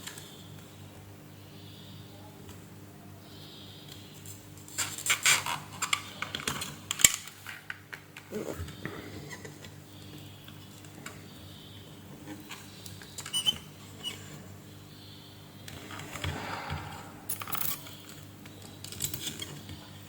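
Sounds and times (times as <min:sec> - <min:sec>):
low electrical hum: 0:00.0 - 0:20.0
small tools clicking and clattering: 0:17.3 - 0:19.8.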